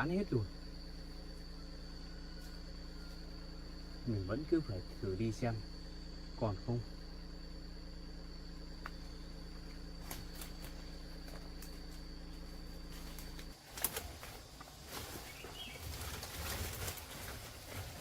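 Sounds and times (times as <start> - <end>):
steady hum with high whine: 0.0 - 18.0
footsteps through dry leaves: 12.8 - 18.0
bird chirp: 15.2 - 16.0.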